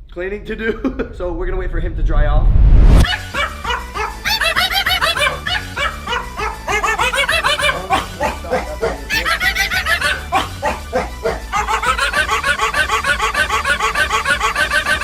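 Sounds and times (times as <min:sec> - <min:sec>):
background music: 0:03.0 - 0:15.0
small dog yapping: 0:03.4 - 0:15.0.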